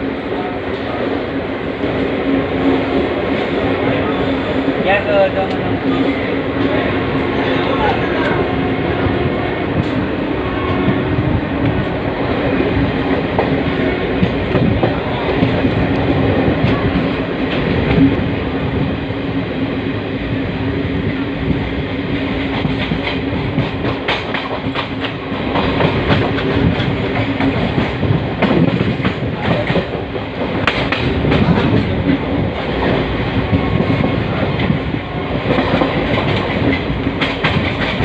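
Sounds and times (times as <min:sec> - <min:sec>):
train rumbling on track: 0:00.0 - 0:38.0
wheels clacking over rail joints: 0:22.4 - 0:38.0.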